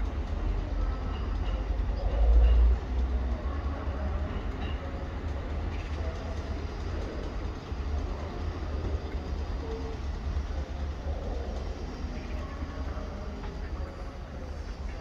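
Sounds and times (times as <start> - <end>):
distant trains rumbling: 0.0 - 15.0.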